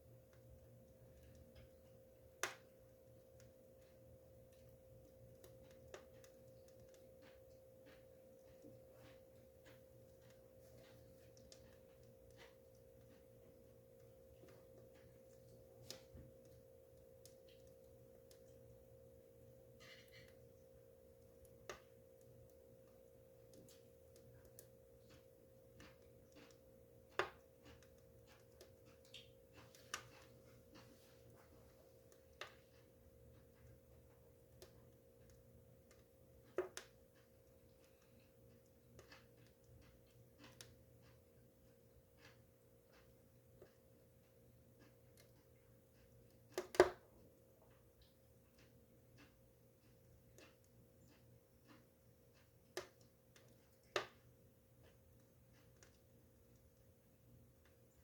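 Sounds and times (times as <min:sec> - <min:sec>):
faint steady hum: 0:00.0 - 0:58.0
wood fire crackling and popping: 0:00.0 - 0:58.0
fire pops: 0:46.5 - 0:47.0.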